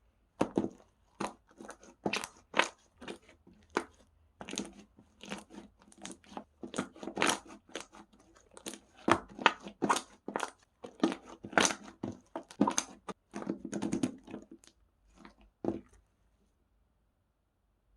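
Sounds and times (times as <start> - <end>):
slime squishing and popping: 0.4 - 14.7.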